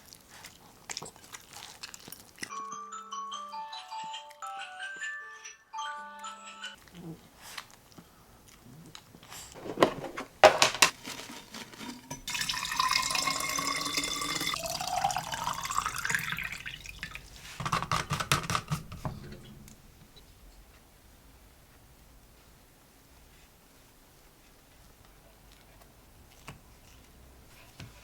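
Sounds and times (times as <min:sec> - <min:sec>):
knocks and clatter: 0:09.6 - 0:12.5, 0:17.6 - 0:19.8
tap running into container: 0:09.6 - 0:19.5.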